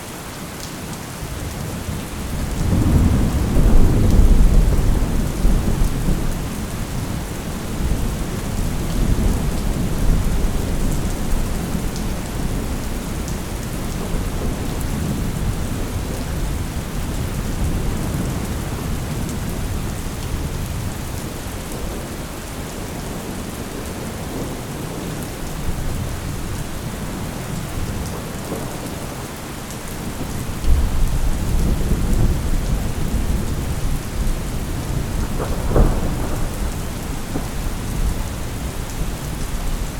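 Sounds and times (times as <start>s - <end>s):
steady rain: 0.0s - 39.9s
rolling thunder: 2.2s - 20.9s, 30.0s - 39.9s.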